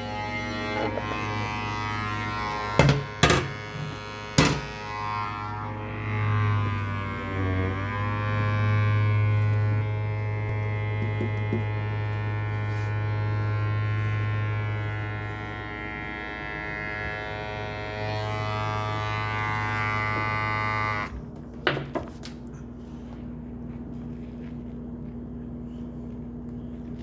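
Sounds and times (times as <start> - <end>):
appliance motor humming: 0.0 - 21.4.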